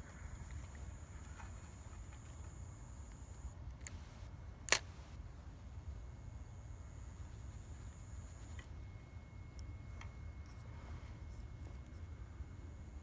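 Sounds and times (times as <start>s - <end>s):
sharp clicks: 3.7s - 5.2s.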